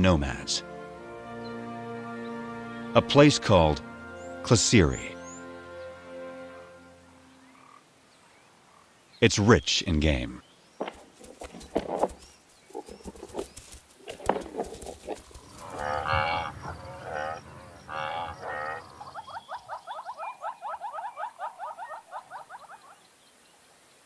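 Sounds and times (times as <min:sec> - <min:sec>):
drawn-out lowing calls: 0:12.7 - 0:23.0
short rising animal calls: 0:15.2 - 0:21.8.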